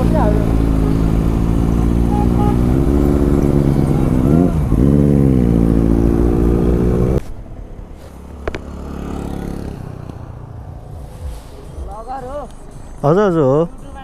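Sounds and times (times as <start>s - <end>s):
motorcycle engine revving high: 0.0s - 7.2s
low engine hum: 0.0s - 12.9s.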